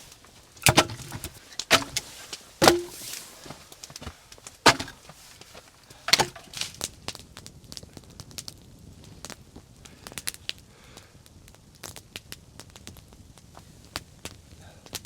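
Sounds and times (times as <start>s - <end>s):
firewood cracking: 0.0s - 6.9s.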